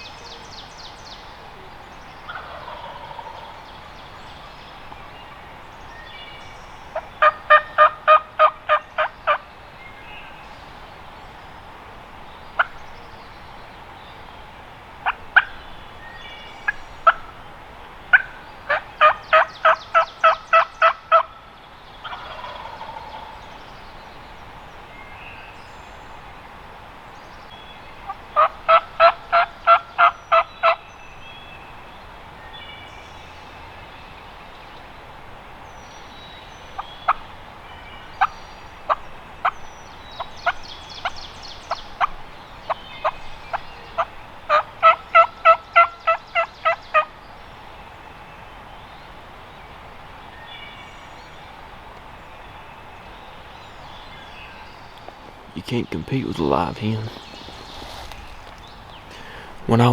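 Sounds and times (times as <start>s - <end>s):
turkey clucks: 2.2s - 3.5s, 7.0s - 9.4s, 15.0s - 15.6s, 18.1s - 21.3s, 22.0s - 23.3s, 28.0s - 30.8s, 38.2s - 39.6s, 40.2s - 47.1s
turkey yelping: 2.3s - 3.5s, 7.2s - 9.4s, 18.1s - 21.3s, 22.0s - 23.3s, 28.4s - 30.8s, 43.0s - 47.1s.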